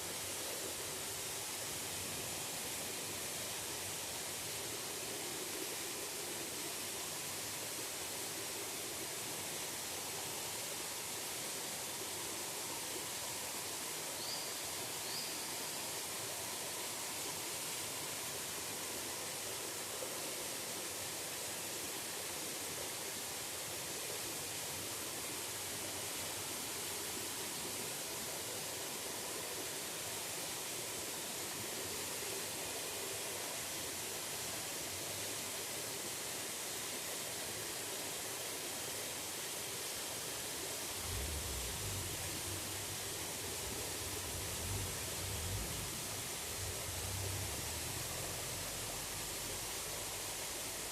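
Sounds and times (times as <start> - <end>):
waterfall rushing: 40.8 - 50.9.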